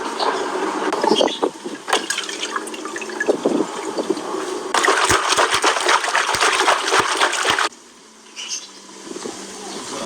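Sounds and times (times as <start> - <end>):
water gushing and splashing: 4.7 - 7.7.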